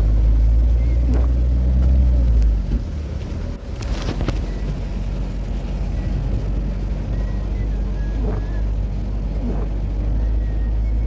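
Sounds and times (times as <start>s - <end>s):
vehicle low rumble: 0.0s - 11.0s
hissing swish: 7.8s - 10.2s.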